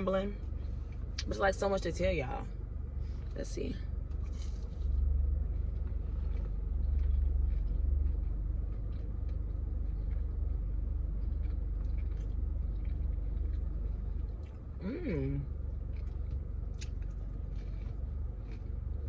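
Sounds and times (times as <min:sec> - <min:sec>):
low rumble: 0:00.0 - 0:19.0
person chewing: 0:04.0 - 0:19.0.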